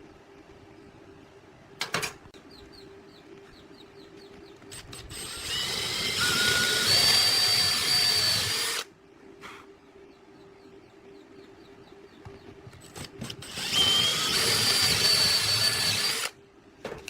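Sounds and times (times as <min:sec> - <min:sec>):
angle grinder whining: 0:04.8 - 0:08.9, 0:13.4 - 0:16.3.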